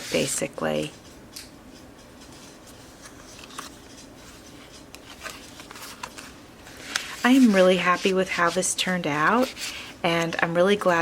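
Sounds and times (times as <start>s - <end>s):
paper pages rustling: 2.2s - 9.8s.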